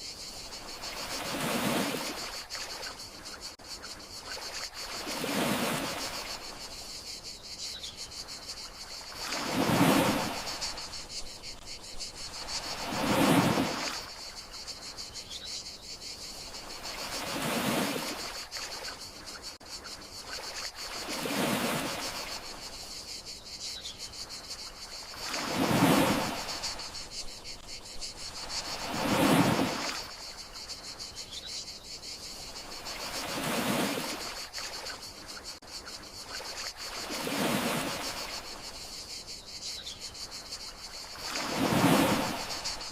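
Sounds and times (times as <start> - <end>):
crickets chirping: 0.0 - 42.9
sea waves washing ashore: 0.3 - 3.2, 4.2 - 6.8, 8.5 - 14.8, 16.4 - 19.0, 20.2 - 22.8, 24.9 - 30.6, 32.6 - 35.2, 36.3 - 38.8, 40.7 - 42.9.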